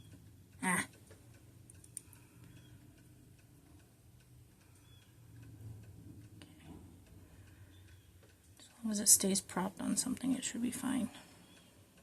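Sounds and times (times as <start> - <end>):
small clicks: 0.9 - 5.6.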